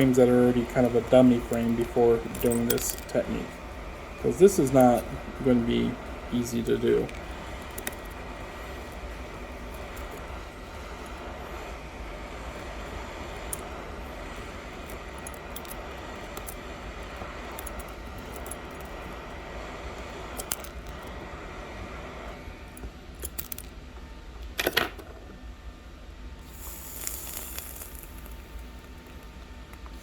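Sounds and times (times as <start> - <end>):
hot air blower hissing: 0.0 - 23.2, 26.3 - 30.0
small metallic clicks and clinks: 0.8 - 3.2.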